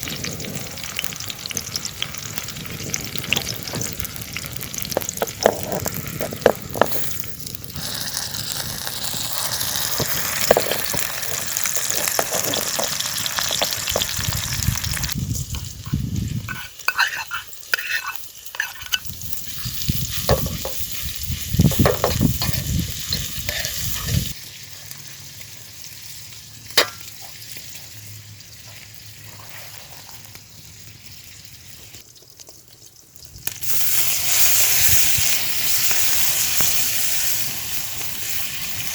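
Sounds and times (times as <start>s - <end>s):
food sizzling in a frying pan: 0.0s - 38.9s
utensil scraping pan: 4.9s - 7.2s, 11.7s - 14.1s, 15.5s - 24.3s
utensil knocking against pan: 21.7s - 22.6s.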